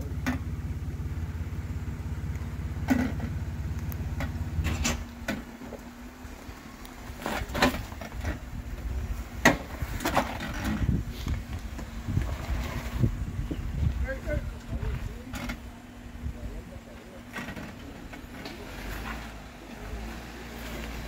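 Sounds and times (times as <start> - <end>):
off-road engine at low revs: 0.0 - 21.0
sharp knocks and clunks: 4.1 - 5.8, 9.4 - 11.0.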